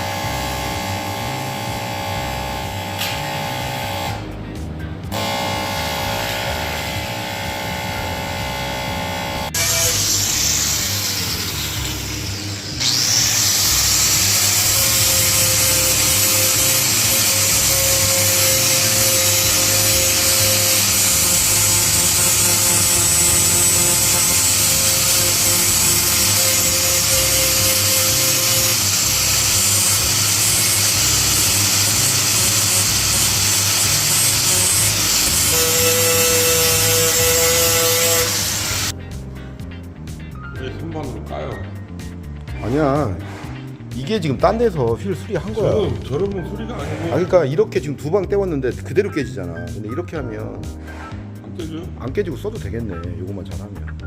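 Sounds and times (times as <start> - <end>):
lathe scraping metal wheel: 9.6 - 38.9.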